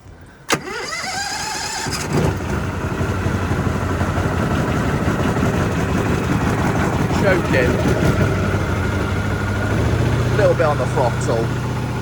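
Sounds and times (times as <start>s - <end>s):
engine running steadily: 0.1s - 12.0s
starter motor cranking: 0.5s - 2.6s.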